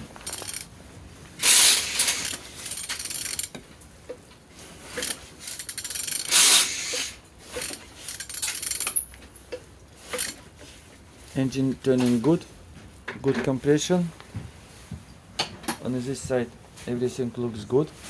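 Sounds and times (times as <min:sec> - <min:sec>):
ratchet wrench clicks: 0:00.2 - 0:00.7, 0:01.4 - 0:03.6, 0:05.0 - 0:09.1
engine rasping as turned over: 0:01.4 - 0:03.5, 0:05.0 - 0:08.9.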